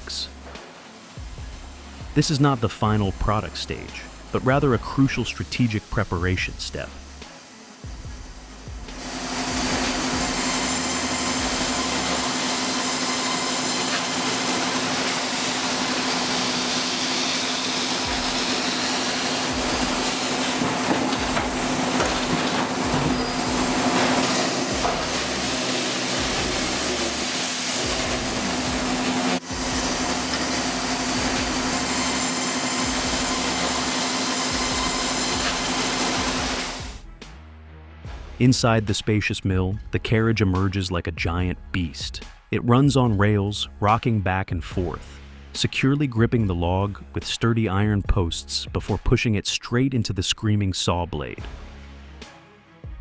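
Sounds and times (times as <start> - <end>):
sawmill machinery running: 0.0 - 37.0.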